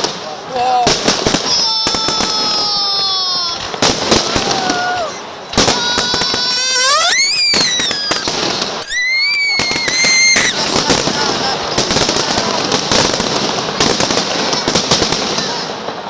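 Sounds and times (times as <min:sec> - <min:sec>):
fireworks bangs and crackles: 0:00.0 - 0:16.0
whistling firework shells: 0:05.6 - 0:10.9.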